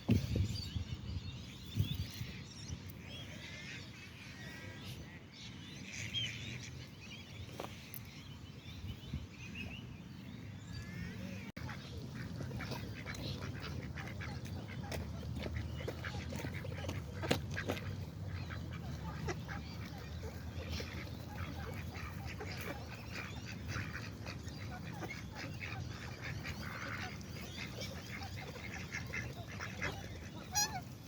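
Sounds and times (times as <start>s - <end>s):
soft bird calls: 0.0s - 31.0s
ducks quacking: 10.8s - 31.0s.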